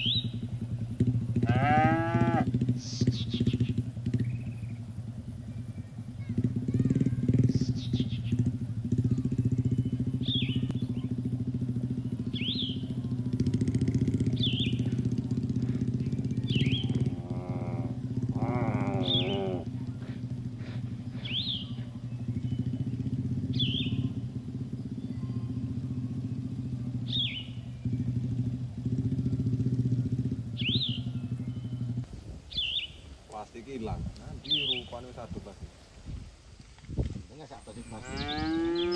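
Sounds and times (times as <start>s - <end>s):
bird whistled call: 0.0s - 0.4s, 2.7s - 4.8s, 6.8s - 8.5s, 9.6s - 11.2s, 12.0s - 13.1s, 14.0s - 15.1s, 16.0s - 17.1s, 21.1s - 24.1s, 27.1s - 28.0s, 30.6s - 31.9s
bird chirping: 0.0s - 36.4s, 37.3s - 38.9s
small engine idling: 0.0s - 38.9s.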